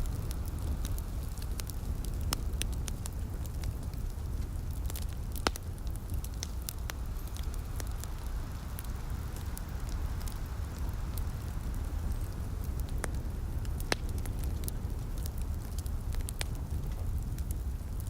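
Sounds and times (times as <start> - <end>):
steady low rumble: 0.0 - 18.0
wood fire crackling and popping: 0.0 - 18.0.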